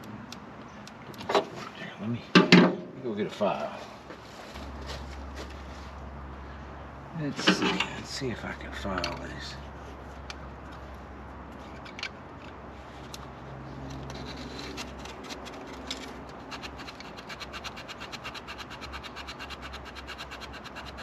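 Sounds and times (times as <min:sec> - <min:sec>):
file rasping on metal: 0:16.5 - 0:21.0.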